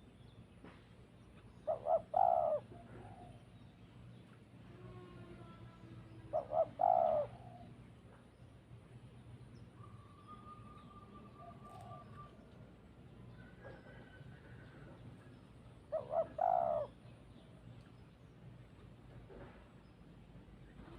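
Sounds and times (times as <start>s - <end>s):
faint bird calls: 0.0s - 8.6s, 9.5s - 18.1s
dove cooing: 1.6s - 3.5s, 6.1s - 8.2s, 15.8s - 17.0s.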